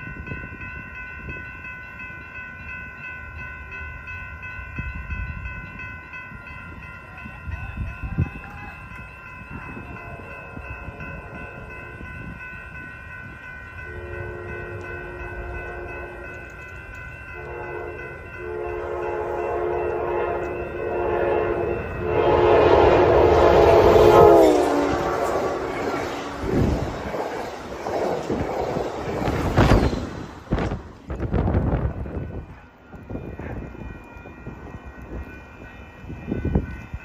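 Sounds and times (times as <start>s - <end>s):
train rumble: 0.0s - 37.0s
train air horn blasts: 13.9s - 16.3s, 17.4s - 25.8s.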